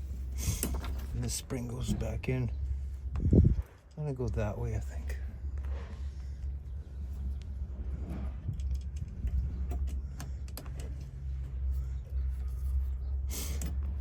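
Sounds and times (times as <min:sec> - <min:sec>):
steady low rumble: 0:00.0 - 0:14.0
small metal clicks and rattling: 0:07.2 - 0:13.9.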